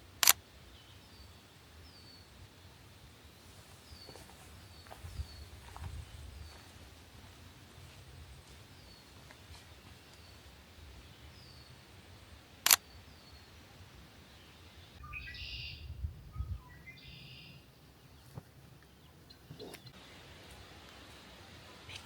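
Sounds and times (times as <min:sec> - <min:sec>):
bird song: 0:00.0 - 0:20.1
camera shutter click: 0:12.6 - 0:12.8.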